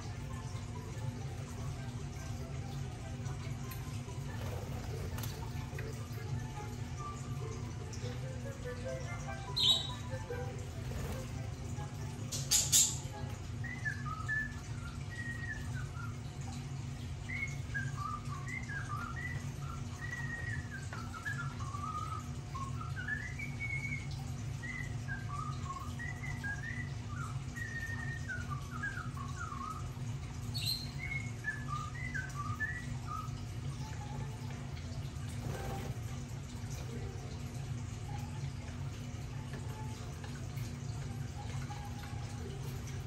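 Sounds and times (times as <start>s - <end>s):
small bird chirping and whistling: 9.4s - 11.2s, 12.3s - 16.3s, 17.3s - 34.4s.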